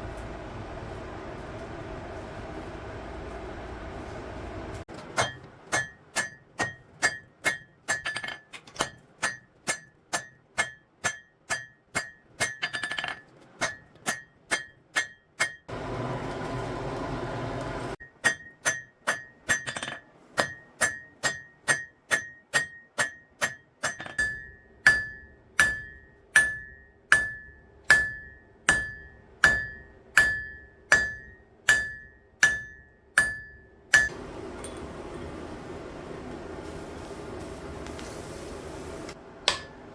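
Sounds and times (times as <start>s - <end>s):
hammer ringing on anvil: 5.2s - 8.2s, 18.2s - 35.4s, 39.5s - 39.8s.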